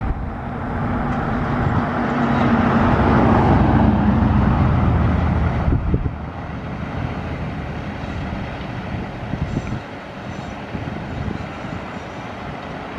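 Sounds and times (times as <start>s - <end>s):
fire engine driving past: 0.0s - 12.9s.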